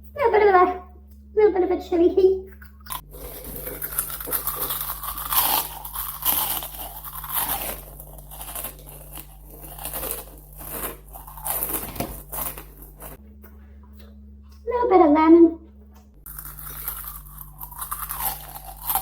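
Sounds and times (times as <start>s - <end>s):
crunching and chewing snacks: 2.5s - 13.2s, 16.2s - 19.0s.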